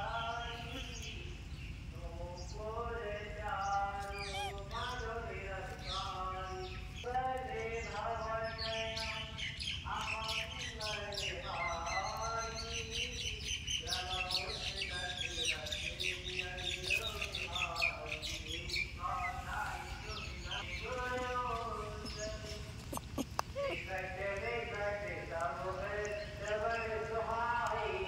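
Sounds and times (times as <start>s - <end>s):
birds chirping and twittering: 0.0s - 28.0s
long wavering high bird calls: 3.5s - 5.2s, 5.8s - 24.1s.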